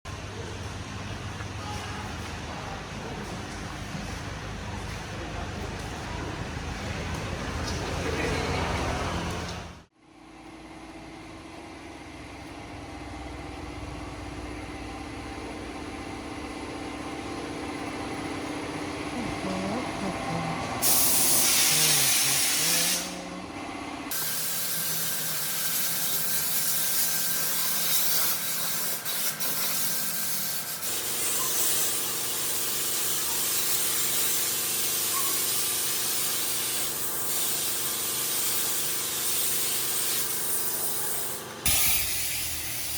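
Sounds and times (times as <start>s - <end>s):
pressure washer spraying water: 19.5s - 23.4s, 24.1s - 42.9s.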